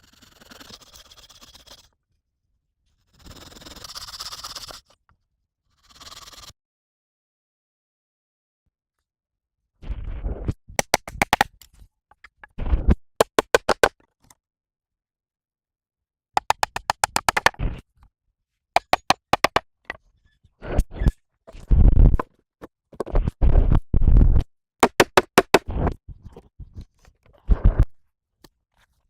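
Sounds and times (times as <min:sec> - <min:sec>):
rapid sharp knocks: 0:13.2 - 0:13.9, 0:16.4 - 0:17.6, 0:18.8 - 0:19.6, 0:24.8 - 0:25.6.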